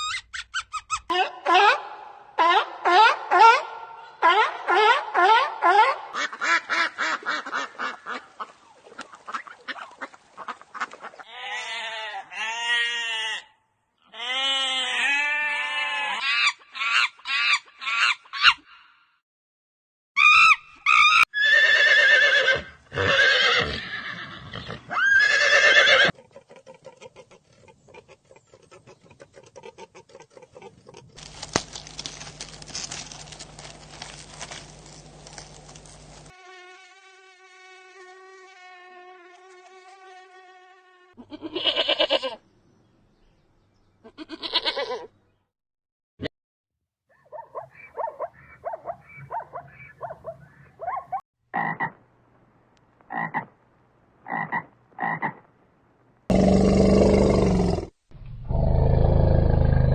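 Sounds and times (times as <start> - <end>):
farm animals calling: 47.2 - 51.9.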